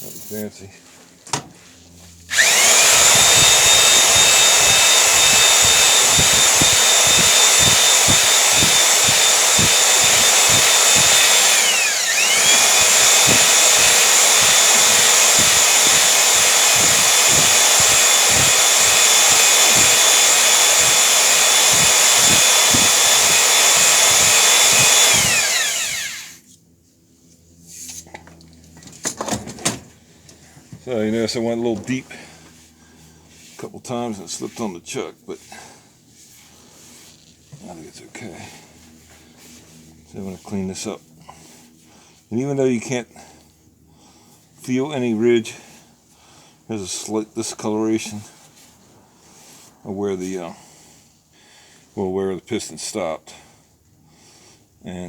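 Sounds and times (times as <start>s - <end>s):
electric drill high whine: 2.3s - 26.4s.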